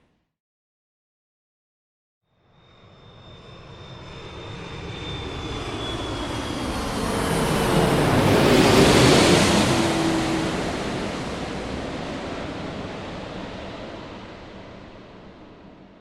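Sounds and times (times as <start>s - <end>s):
airplane passing by: 2.7s - 15.1s.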